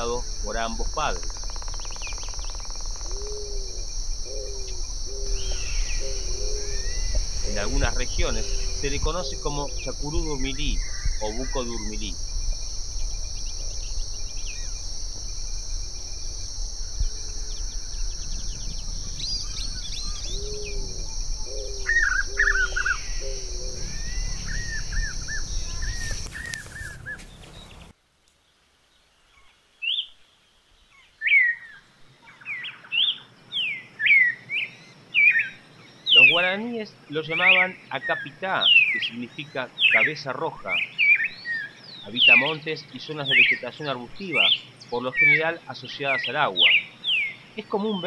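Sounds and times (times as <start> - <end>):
high buzz of insects: 0.0 - 27.9, 33.6 - 48.0
puffbird calling: 0.0 - 27.9
cardinal whistled song: 3.2 - 12.0.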